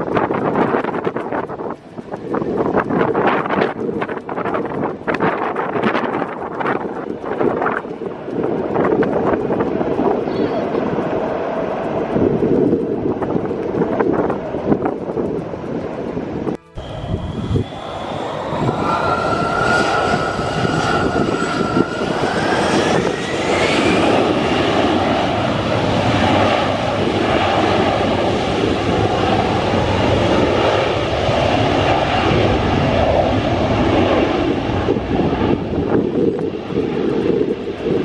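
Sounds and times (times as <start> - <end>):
jet engines spooling up: 0.0 - 38.0.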